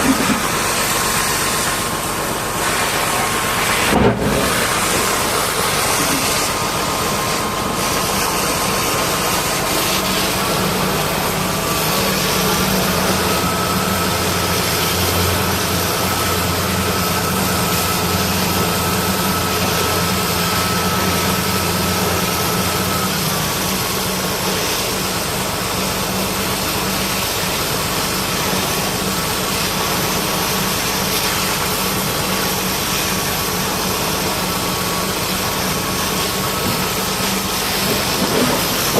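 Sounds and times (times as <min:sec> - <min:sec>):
pressure washer engine and pump hum: 0:00.0 - 0:38.9.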